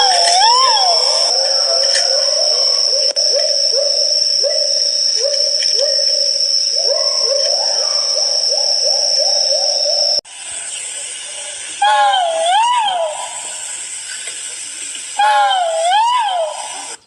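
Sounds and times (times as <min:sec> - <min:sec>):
bird giving rising hoots: 0:00.0 - 0:10.2
high-pitched whine: 0:00.0 - 0:11.8.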